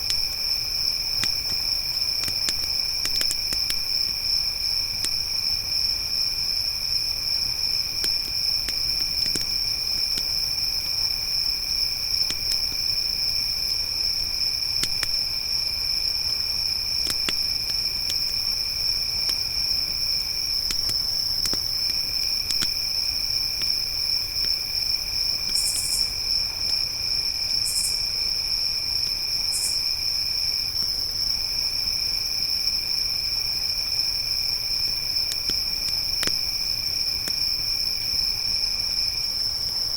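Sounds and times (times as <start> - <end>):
campfire crackling: 0.0 - 27.7, 33.5 - 38.2
crickets trilling: 0.0 - 39.9
lower insect trill: 0.0 - 39.9.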